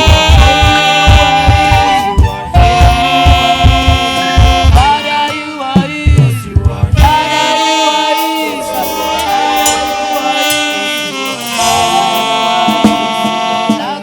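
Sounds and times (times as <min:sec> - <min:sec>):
steady kick drum: 0:00.0 - 0:05.0, 0:05.8 - 0:07.4
live band playing: 0:00.0 - 0:14.0
saxophone playing held notes: 0:00.0 - 0:14.0.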